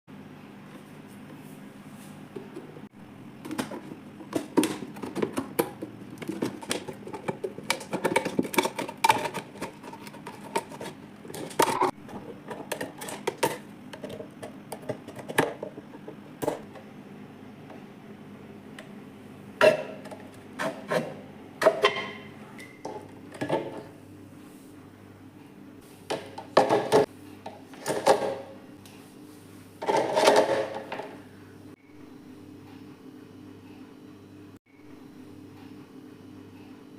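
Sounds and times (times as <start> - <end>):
steady low hum: 0.1 - 36.9
dishes clattering: 19.6 - 23.9.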